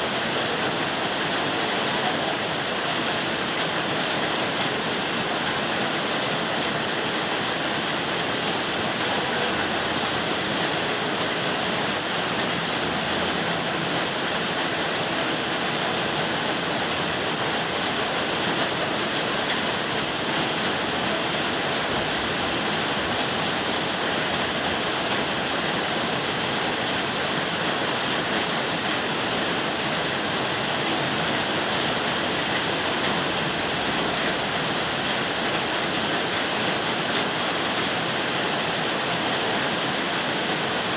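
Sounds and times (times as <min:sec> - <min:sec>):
rain falling steadily: 0:00.0 - 0:40.9.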